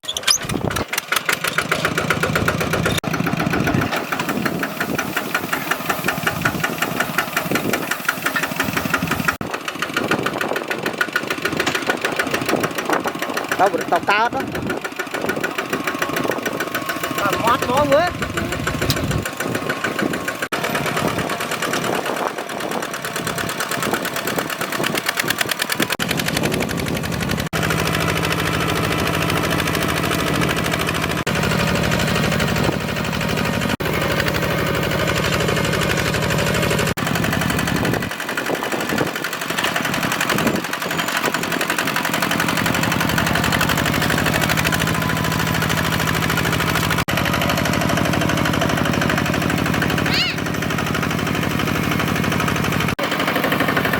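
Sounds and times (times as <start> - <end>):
diesel engine chugging: 0.0 - 53.9.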